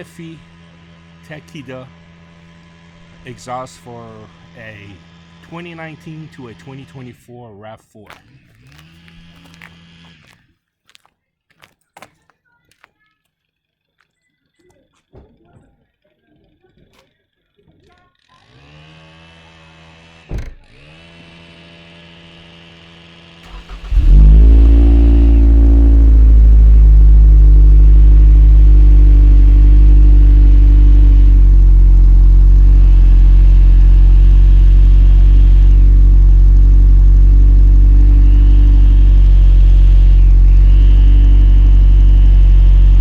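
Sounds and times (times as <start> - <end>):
car engine starting and idling: 0.0 - 7.2, 23.4 - 43.0.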